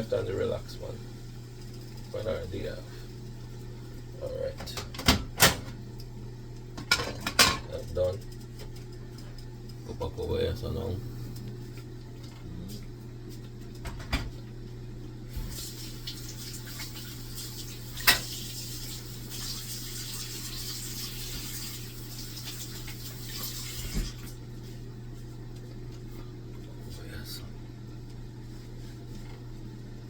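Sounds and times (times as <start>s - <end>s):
kitchen tap running: 0.0s - 10.9s, 15.2s - 24.5s
kitchenware clinking: 6.8s - 7.8s.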